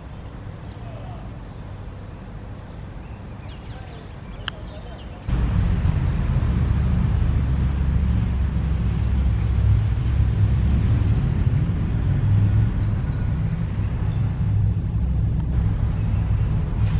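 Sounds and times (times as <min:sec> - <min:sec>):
steady low rumble: 0:05.3 - 0:16.9
bird chirping and trilling: 0:12.0 - 0:16.6.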